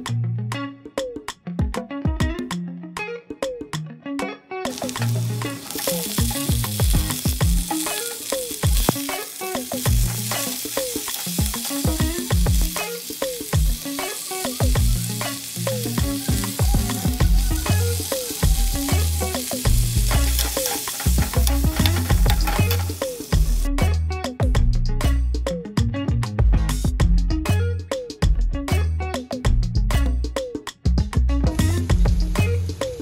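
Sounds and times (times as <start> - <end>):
background music: 0.0 - 33.0
food sizzling in hot oil: 4.7 - 23.7, 31.6 - 33.0.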